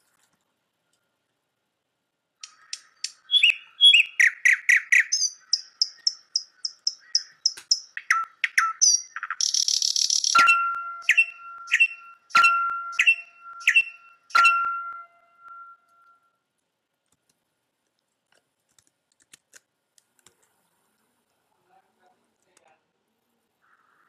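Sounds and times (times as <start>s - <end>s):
recorded birdsong: 2.4s - 16.3s, 23.4s - 24.0s
steady high tone: 10.4s - 16.3s.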